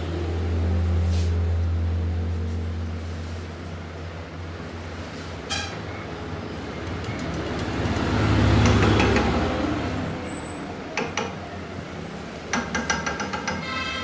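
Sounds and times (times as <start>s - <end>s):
low mechanical rumble: 0.0s - 7.5s.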